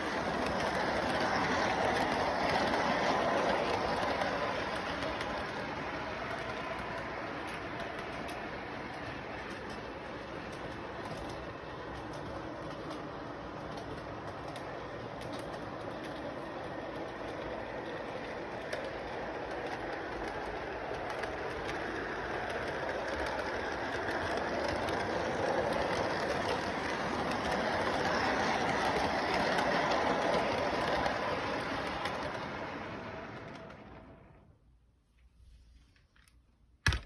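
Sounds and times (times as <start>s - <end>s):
train rumbling on track: 0.0s - 34.4s.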